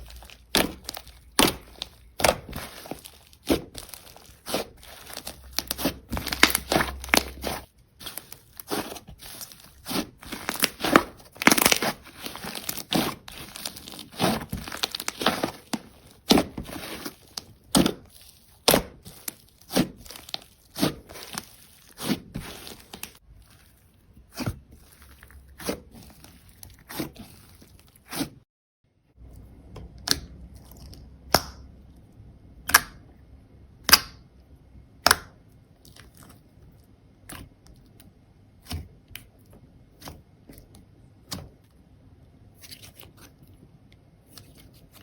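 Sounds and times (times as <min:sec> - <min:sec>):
slime popping and crackling: 0:00.0 - 0:23.2.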